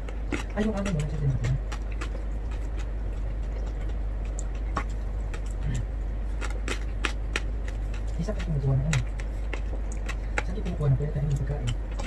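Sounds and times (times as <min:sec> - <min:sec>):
person chewing: 0:00.0 - 0:12.0
steady low hum: 0:00.0 - 0:12.0.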